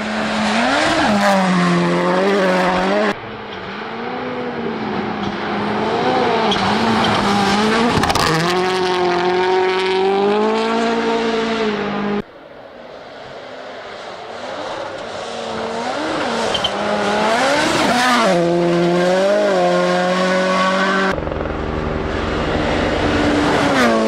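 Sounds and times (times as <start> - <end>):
rally car engine revving: 0.0 - 12.2, 14.3 - 24.0.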